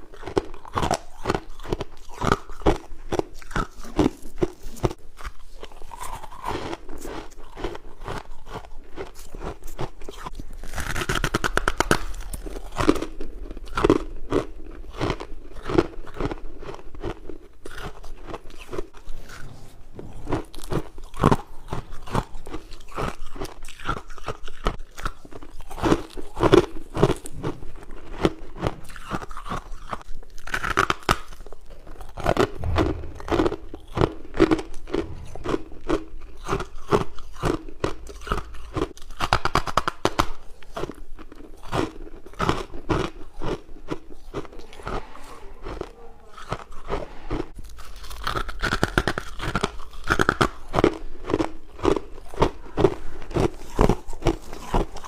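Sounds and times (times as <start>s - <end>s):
person crunching ice: 40.8s - 55.0s.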